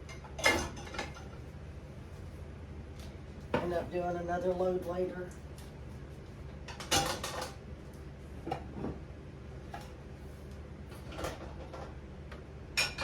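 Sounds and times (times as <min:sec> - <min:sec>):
dishes clattering into a rack: 0:12.8 - 0:13.0.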